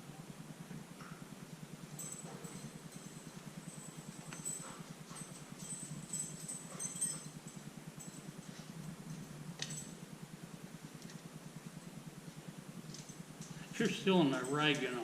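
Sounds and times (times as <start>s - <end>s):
machine hum: 0.0s - 15.0s
metallic clinks of hand tools: 1.9s - 10.0s, 12.9s - 15.0s.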